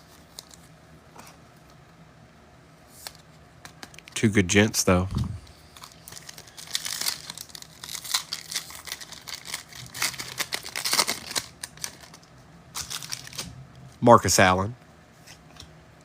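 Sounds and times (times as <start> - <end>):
card wrappers crinkling: 0.0 - 0.8, 5.4 - 13.5.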